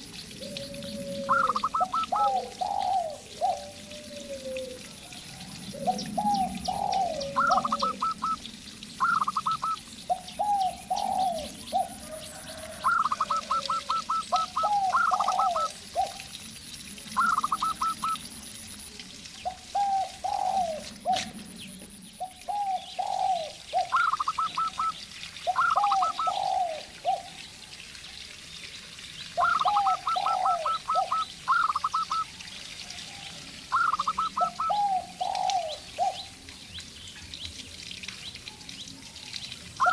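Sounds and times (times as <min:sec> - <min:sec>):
dove cooing low: 0:00.3 - 0:16.4, 0:17.0 - 0:18.3, 0:19.4 - 0:21.6, 0:22.2 - 0:27.4, 0:29.4 - 0:36.4.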